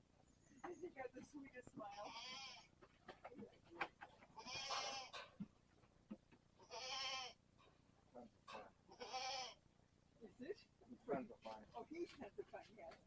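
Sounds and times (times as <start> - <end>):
goat bleating: 1.9 - 2.7, 4.4 - 5.2, 6.6 - 7.4, 8.9 - 9.6.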